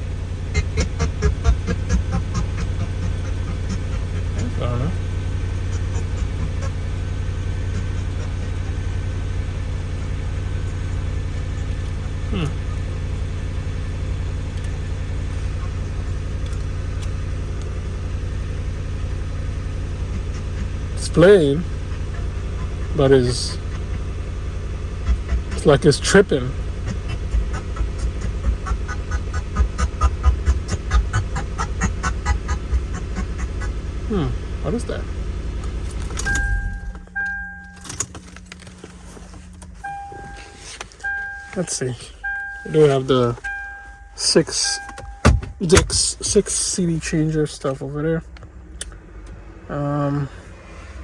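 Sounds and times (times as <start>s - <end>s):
steady low hum: 0.0s - 22.8s, 34.1s - 49.4s
car engine idling with low rumble: 0.0s - 51.0s
low rumble: 35.6s - 47.4s
short electronic beeps: 36.2s - 38.0s, 39.8s - 46.0s.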